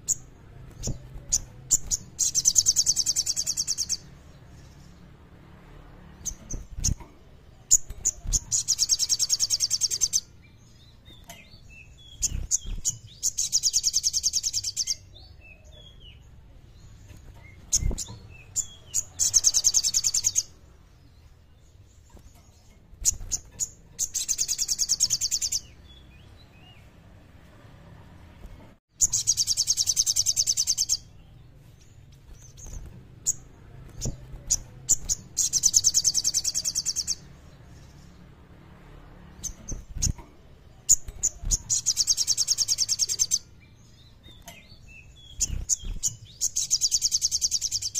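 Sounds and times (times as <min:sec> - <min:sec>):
songbird chirps and high rattling trill: 0:01.8 - 0:04.1.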